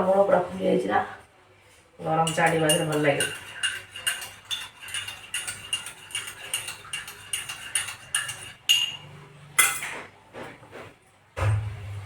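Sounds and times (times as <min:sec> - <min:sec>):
dishware clatter: 0:02.2 - 0:10.1
metal dishware clinking: 0:02.2 - 0:10.1.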